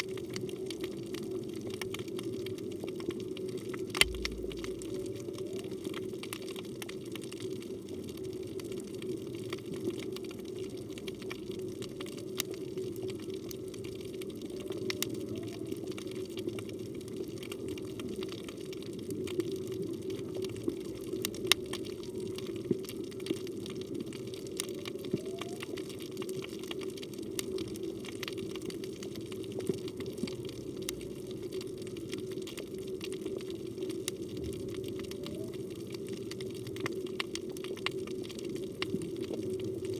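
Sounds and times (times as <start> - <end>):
sharp clicks and crackles: 0.0 - 7.6
muffled rush of water: 0.0 - 39.9.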